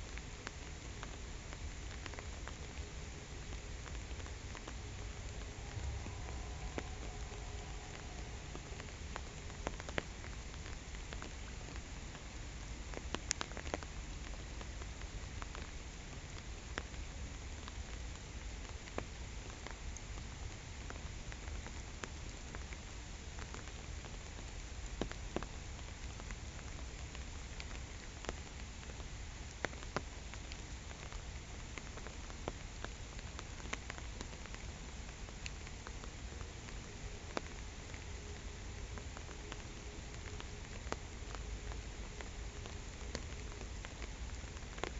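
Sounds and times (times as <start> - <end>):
rain falling on a pond: 0.0 - 44.9.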